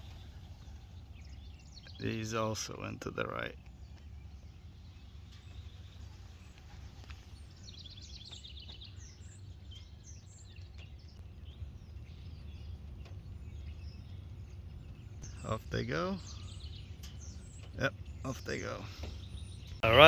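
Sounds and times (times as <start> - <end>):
low rumble: 0.0 - 2.2
small birds chirping: 0.0 - 20.0.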